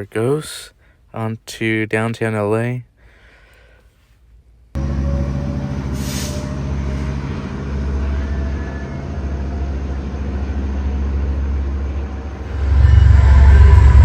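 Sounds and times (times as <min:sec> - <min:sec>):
diesel locomotive engine rumble: 0:04.8 - 0:14.0.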